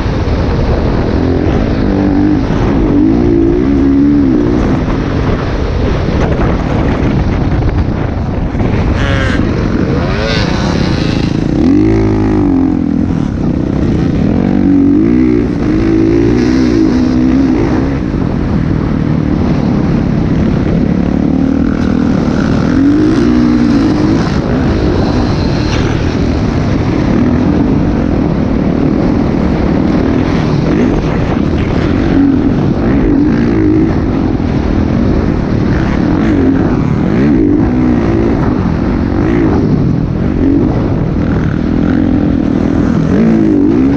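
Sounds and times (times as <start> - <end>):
dirt bike engine revving: 0.0 - 7.1, 7.9 - 43.9.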